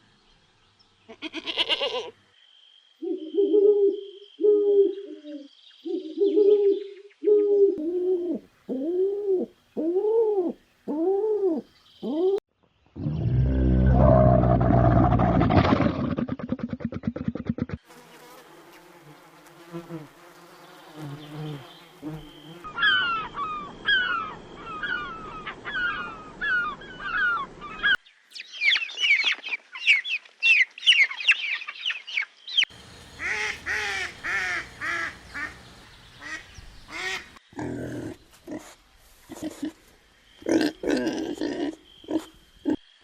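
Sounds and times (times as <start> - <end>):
bird chirping: 20.4 - 38.4.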